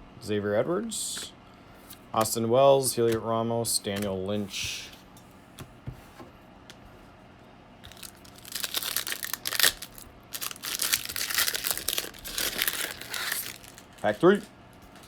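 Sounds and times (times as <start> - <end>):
foil wrapper tearing and crinkling: 7.8 - 14.5.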